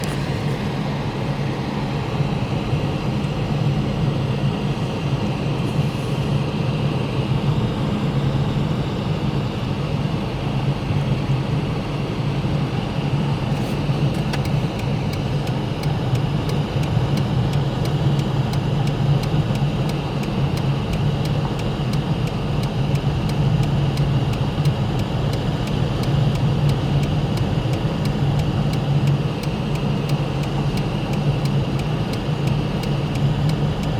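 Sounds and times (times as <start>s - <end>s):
vehicle engine and road noise: 0.0s - 33.9s
faint regular ticking: 14.4s - 33.9s.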